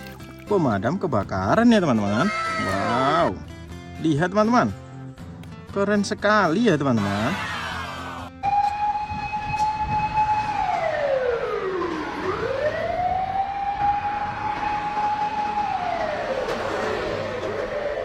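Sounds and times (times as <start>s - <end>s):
fire engine siren wailing: 7.3s - 18.0s.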